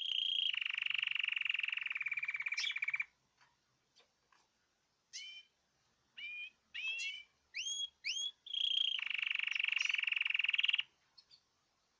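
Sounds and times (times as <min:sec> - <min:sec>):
cage birds singing: 0:00.0 - 0:03.1, 0:05.1 - 0:05.5, 0:06.2 - 0:11.5.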